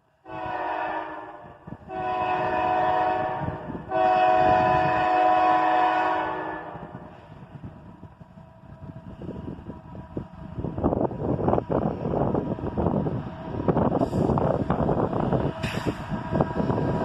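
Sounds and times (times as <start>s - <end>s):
low train rumble: 0.0s - 17.0s
locomotive air horn blasts: 0.2s - 7.1s, 15.6s - 17.0s.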